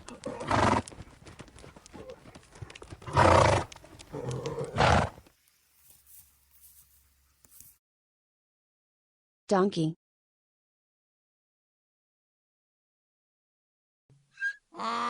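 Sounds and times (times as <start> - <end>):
loud horse calls: 0.0 - 0.9, 3.0 - 5.2
hooves clip-clopping: 0.0 - 7.8.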